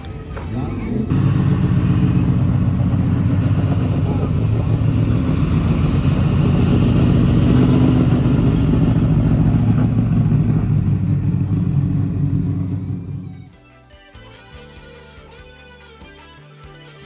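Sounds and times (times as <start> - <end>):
car engine low rumble: 0.0 - 13.5.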